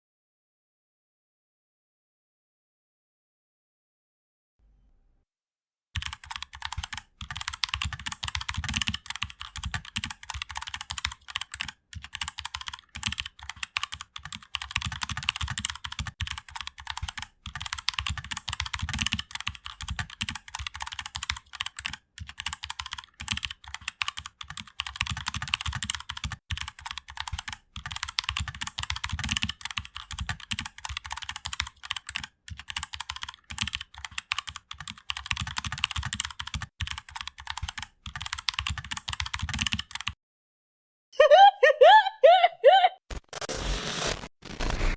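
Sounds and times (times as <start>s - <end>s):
computer keyboard typing: 6.0s - 40.2s.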